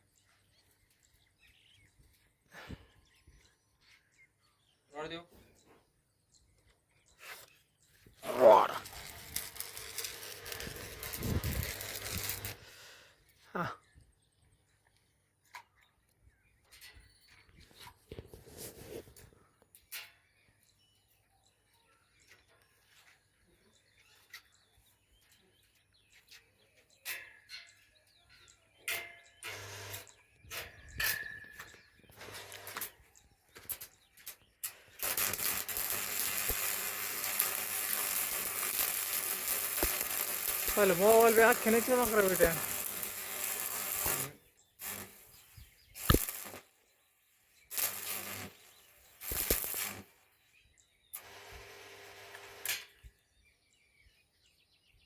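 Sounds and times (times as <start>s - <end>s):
welding arc crackling: 8.2s - 12.6s, 34.6s - 46.8s, 47.7s - 50.3s, 51.2s - 52.8s.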